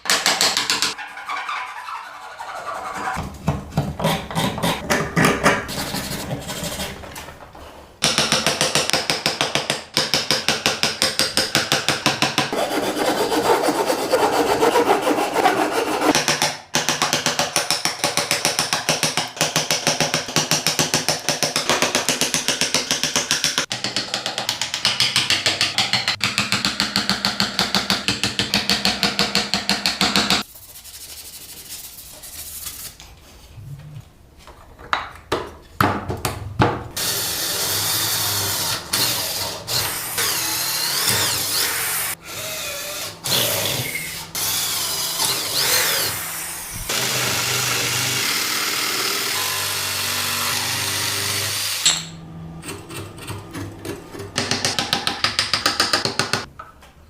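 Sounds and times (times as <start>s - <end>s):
hand tool scraping wood: 0.9s - 4.9s, 5.6s - 7.1s, 12.5s - 16.3s.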